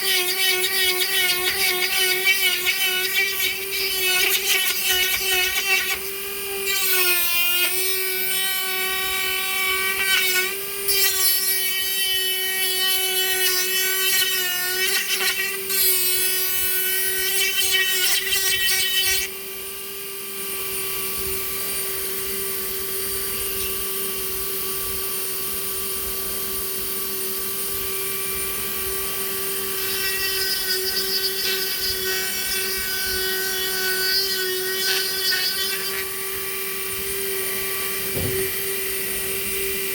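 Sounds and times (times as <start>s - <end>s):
rotary tool grinding into wood: 0.0s - 19.3s, 29.0s - 39.9s.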